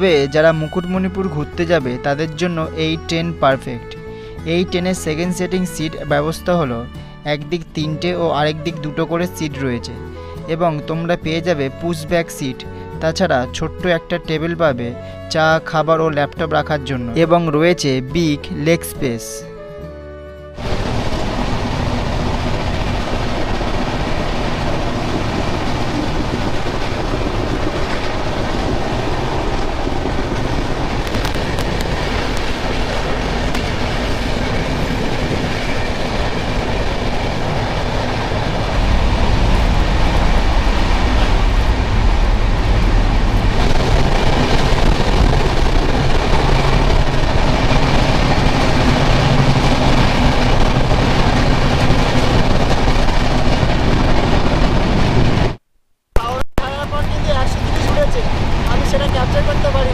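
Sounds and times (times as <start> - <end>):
train wheels rumbling on rails: 20.6 - 55.6, 56.2 - 59.9.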